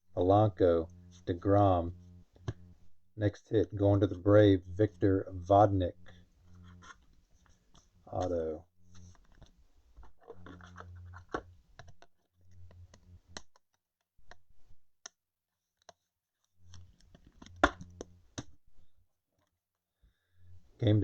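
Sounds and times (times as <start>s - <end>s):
trading cards handled: 6.4s - 12.2s.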